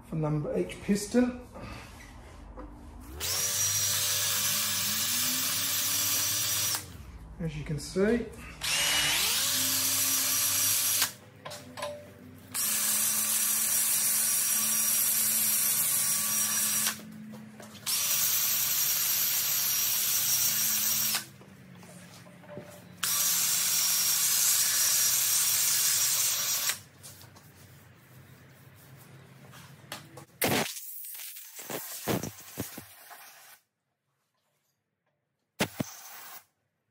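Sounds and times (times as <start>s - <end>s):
electric drill running: 3.1s - 6.9s, 8.6s - 11.2s, 12.5s - 17.0s, 17.8s - 21.3s, 23.0s - 26.8s.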